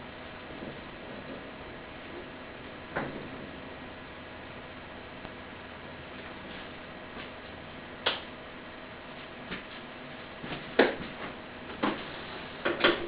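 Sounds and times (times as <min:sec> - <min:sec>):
steady low hiss: 0:00.0 - 0:13.0
sharp clicks and knocks: 0:08.0 - 0:08.3.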